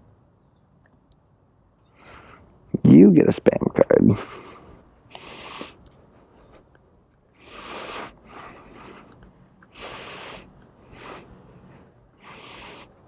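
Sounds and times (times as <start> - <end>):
person breathing: 1.8 - 2.6, 4.2 - 6.7, 7.3 - 13.0.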